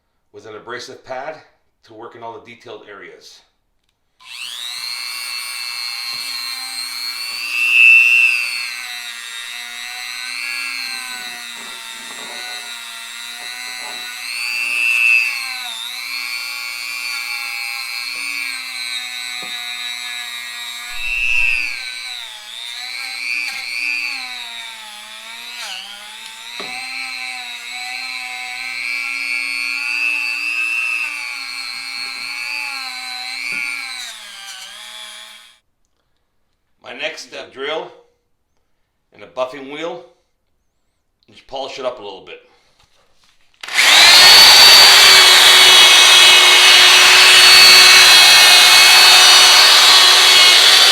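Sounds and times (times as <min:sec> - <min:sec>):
rotary tool grinding metal: 0:04.2 - 0:35.6, 0:43.6 - 0:50.9.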